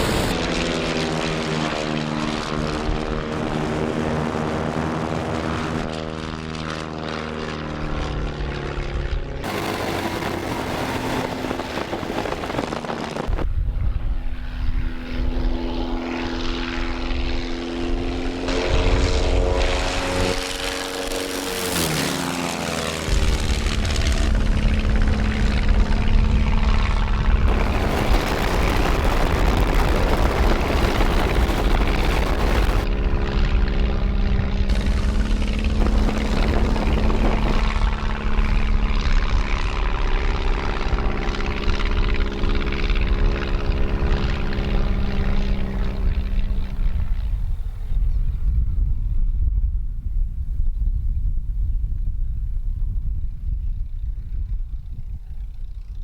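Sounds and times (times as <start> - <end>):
propeller engine drone: 0.0 - 56.0
heavy low rumble: 7.7 - 16.0, 23.1 - 55.9.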